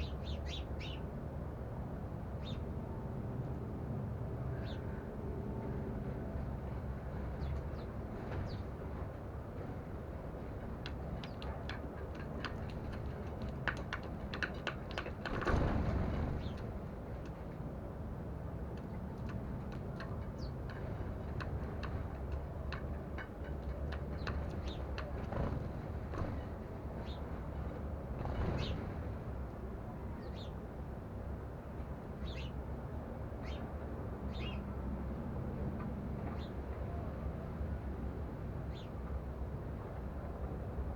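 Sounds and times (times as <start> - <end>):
sparrows chirping: 0.0 - 1.1, 2.4 - 2.7, 4.5 - 5.0, 7.4 - 8.7, 11.1 - 15.4, 16.4 - 16.7, 24.0 - 25.3, 26.4 - 27.3, 28.4 - 28.8, 30.2 - 30.6, 32.2 - 32.6, 33.4 - 33.7, 34.3 - 34.7, 36.4 - 36.6, 38.6 - 39.0
birds pecking seed: 10.8 - 16.7.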